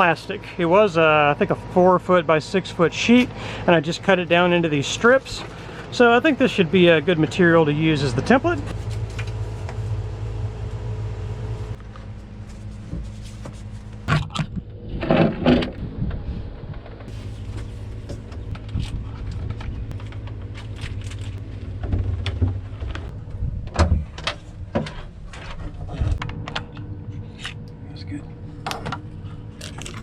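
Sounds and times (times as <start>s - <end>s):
steady low hum: 0.0s - 30.0s
knocks and handling noises: 8.7s - 10.2s, 11.8s - 14.6s.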